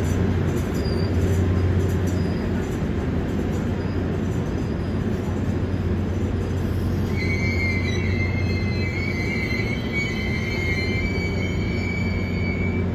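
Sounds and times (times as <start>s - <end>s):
train rolling with low rumble: 0.0s - 12.9s
high-pitched wheel squeal: 6.8s - 12.9s.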